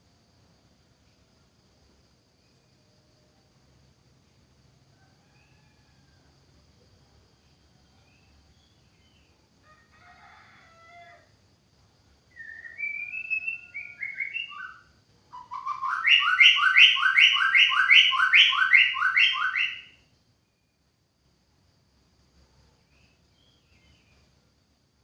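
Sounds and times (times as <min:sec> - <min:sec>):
bird singing whistled notes: 0:12.3 - 0:20.8
bird harsh repeated notes: 0:15.5 - 0:19.9.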